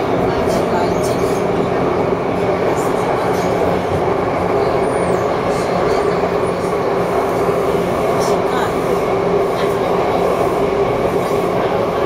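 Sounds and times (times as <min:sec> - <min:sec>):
train motor hum: 0:00.0 - 0:12.0
wheels rumbling on rail: 0:00.0 - 0:12.0.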